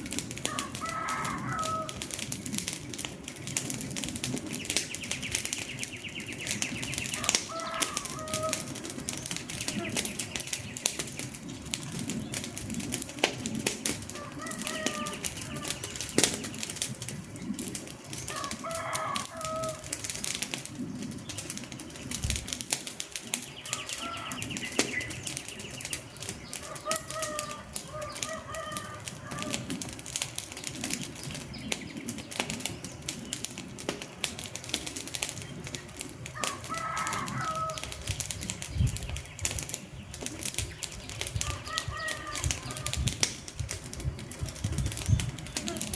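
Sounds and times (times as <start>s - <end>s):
wood fire crackling and popping: 0.0s - 45.9s
faint bird calls: 4.6s - 11.4s, 14.1s - 16.7s, 23.4s - 29.8s, 35.6s - 43.2s.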